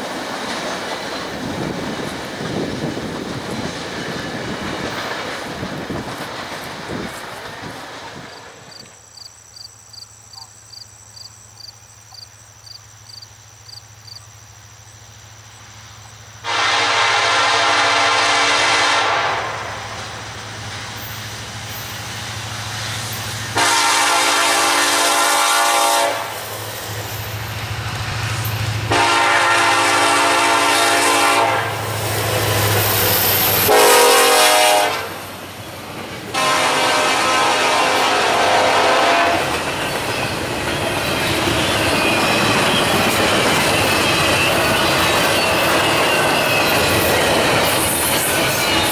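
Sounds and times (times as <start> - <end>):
train air horn blasts: 16.4 - 20.1, 23.5 - 26.5, 28.9 - 32.0, 33.6 - 35.2, 36.3 - 39.6.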